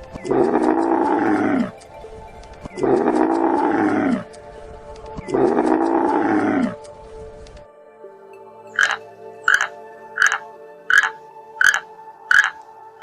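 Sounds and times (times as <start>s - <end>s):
background music: 0.0s - 13.0s
animal calls falling in pitch: 8.8s - 12.6s.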